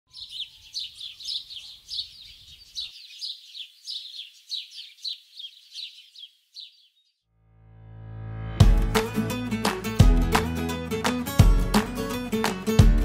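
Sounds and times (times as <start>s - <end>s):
bird chirping: 0.1s - 7.3s.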